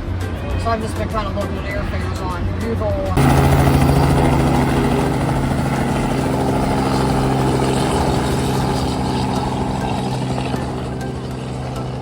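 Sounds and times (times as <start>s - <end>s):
helicopter engine and rotor: 3.2s - 12.0s.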